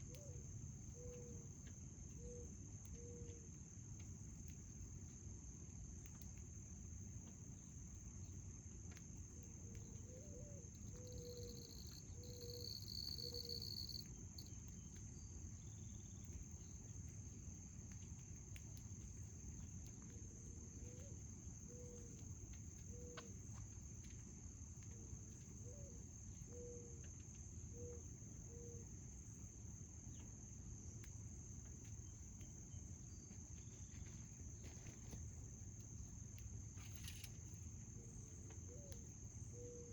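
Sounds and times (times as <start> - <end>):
crickets chirring: 6.6 - 39.9
bird calling: 10.9 - 14.0.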